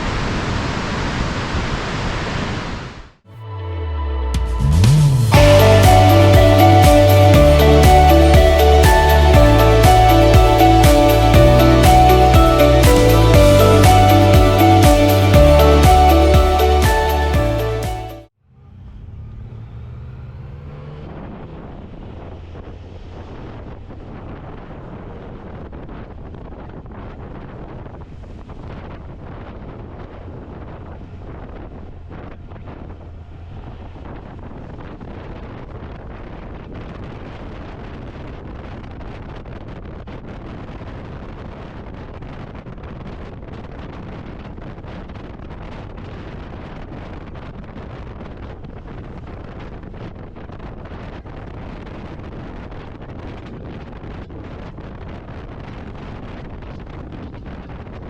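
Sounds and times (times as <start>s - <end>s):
low drone: 3.3s - 19.2s
wind rushing over microphone: 19.5s - 58.0s.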